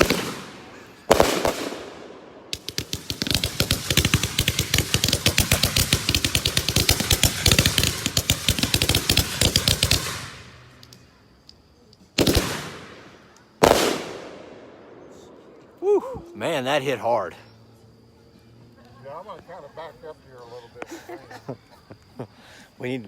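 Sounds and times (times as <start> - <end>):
fireworks rapid string of shots: 0.0 - 10.6, 12.2 - 15.1
heavy firework breaks echoing: 0.0 - 10.8, 12.2 - 15.7.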